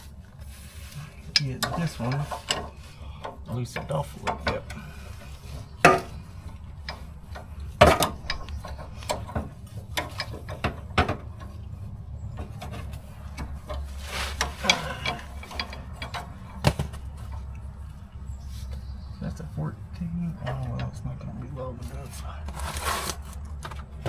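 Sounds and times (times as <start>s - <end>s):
metal clanking and knocking: 1.2s - 17.5s.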